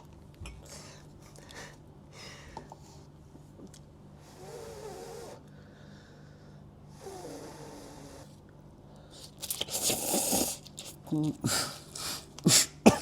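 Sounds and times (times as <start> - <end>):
man coughing: 12.5 - 13.0.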